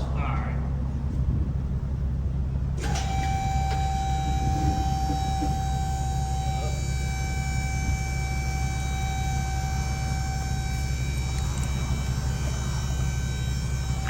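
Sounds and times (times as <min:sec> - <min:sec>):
car engine rumble: 0:00.0 - 0:14.0
steady high tones: 0:03.0 - 0:14.0.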